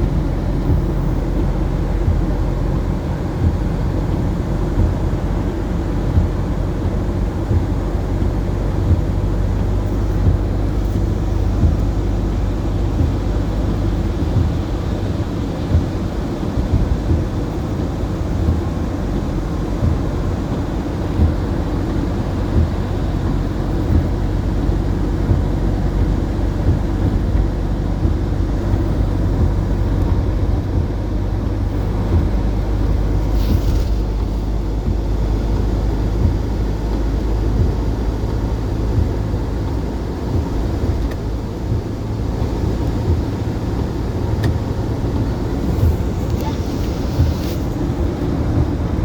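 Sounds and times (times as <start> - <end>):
engine rumbling: 0.0 - 49.0
brief hiss: 33.2 - 34.6, 45.6 - 48.0.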